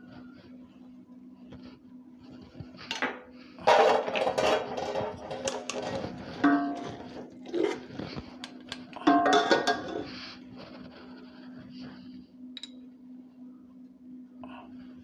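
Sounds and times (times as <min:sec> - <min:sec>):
metal utensil scraping a pan: 0:02.9 - 0:10.2.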